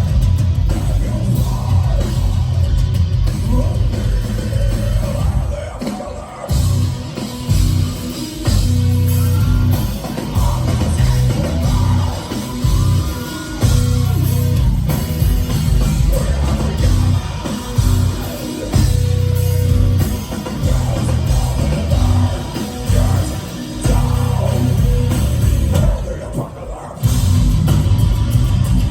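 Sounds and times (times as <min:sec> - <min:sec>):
heavy metal band playing live: 0:00.0 - 0:28.9
person singing: 0:00.7 - 0:02.7, 0:09.0 - 0:15.0, 0:15.8 - 0:27.1.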